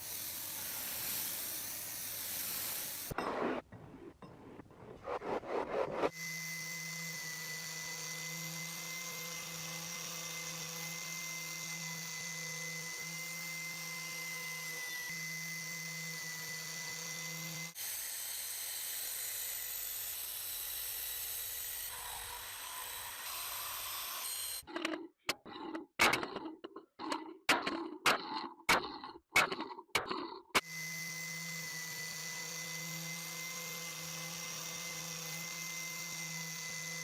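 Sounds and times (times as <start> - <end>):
grinding hiss: 0.0 - 3.2
power tool whining: 6.1 - 25.0, 30.6 - 37.0.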